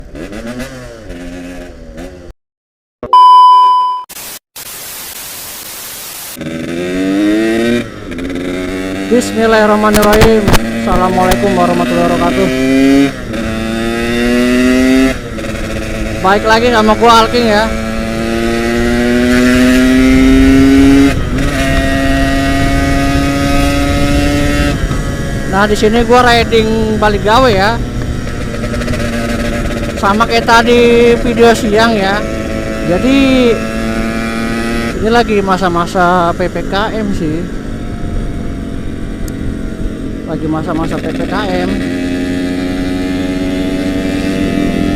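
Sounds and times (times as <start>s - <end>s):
two-stroke motorcycle engine: 0.0s - 2.3s, 6.3s - 44.9s
loud steady beep: 3.0s - 4.1s
static hiss: 4.1s - 6.4s.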